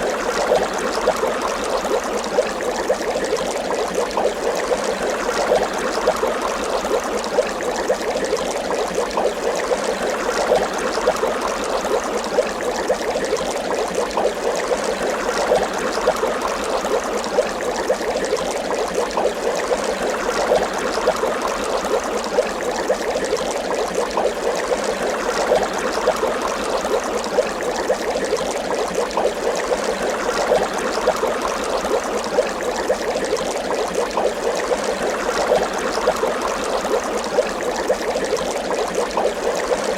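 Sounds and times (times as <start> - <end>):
water bubbling: 0.0 - 39.9.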